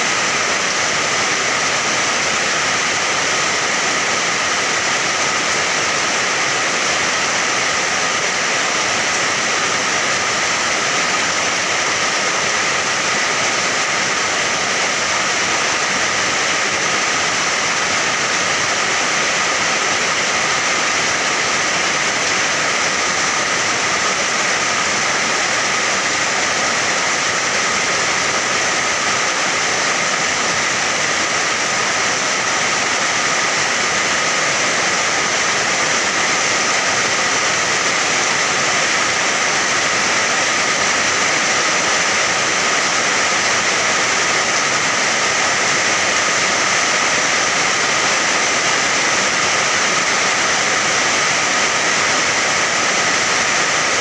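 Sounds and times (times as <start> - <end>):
heavy rain hiss: 0.0 - 54.0.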